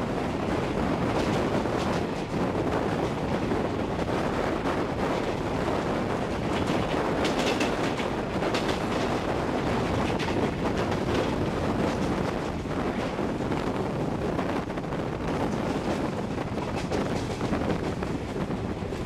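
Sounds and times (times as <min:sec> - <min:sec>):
train wheels rumbling on rail: 0:00.0 - 0:19.0
wind rushing over microphone: 0:00.0 - 0:19.0.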